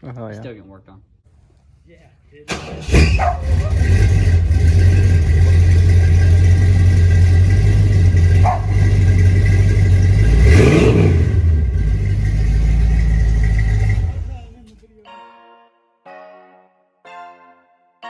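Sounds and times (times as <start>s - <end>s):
truck engine idling loudly: 2.5s - 14.8s.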